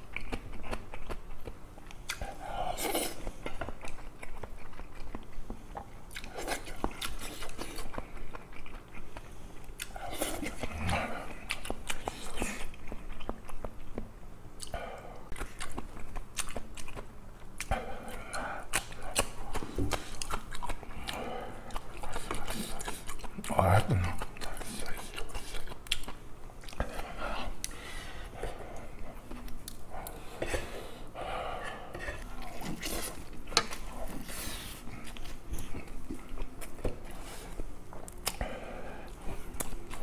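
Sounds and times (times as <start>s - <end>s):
person chewing food: 0.0s - 40.0s.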